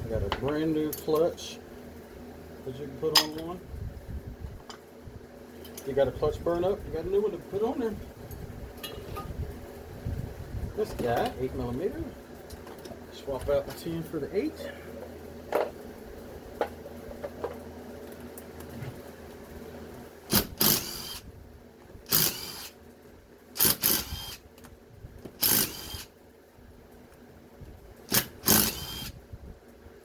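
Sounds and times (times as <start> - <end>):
cordless drill spinning: 20.3 - 21.3, 22.1 - 22.8, 23.6 - 24.4, 25.4 - 26.1, 28.1 - 29.2.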